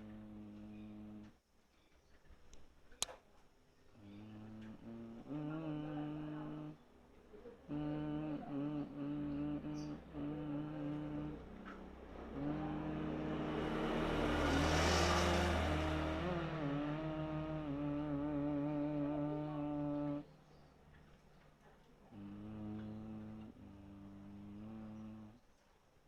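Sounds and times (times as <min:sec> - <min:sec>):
vehicle passing by: 0:00.0 - 0:01.3, 0:07.5 - 0:21.2, 0:22.2 - 0:25.4
person humming low notes: 0:00.0 - 0:01.4, 0:04.0 - 0:06.8, 0:07.6 - 0:20.3, 0:22.1 - 0:25.4.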